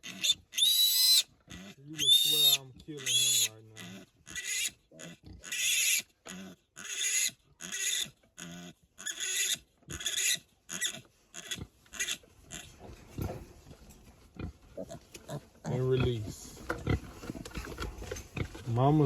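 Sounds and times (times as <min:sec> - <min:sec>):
piglet squealing: 0:00.0 - 0:12.7.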